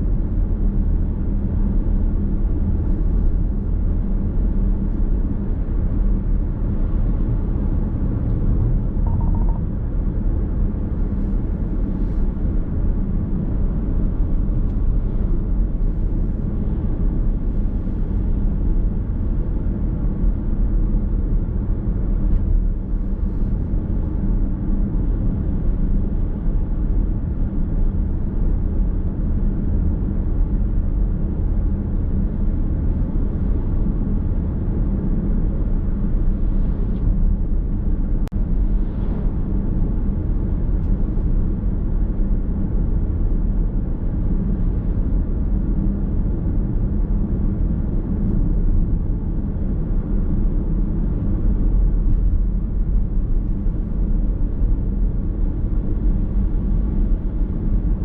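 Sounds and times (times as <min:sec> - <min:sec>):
car interior road rumble: 0:00.0 - 0:58.0.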